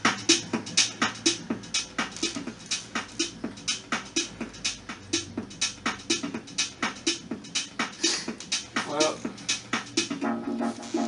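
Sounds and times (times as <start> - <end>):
electronic music with fast beat: 0.0 - 11.0.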